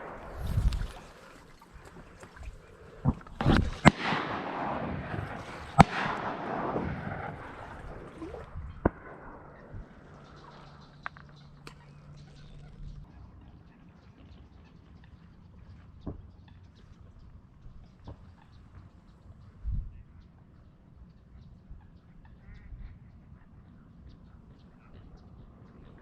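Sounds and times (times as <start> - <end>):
hissing wash: 0.0 - 11.0
shotgun shots: 3.4 - 10.1.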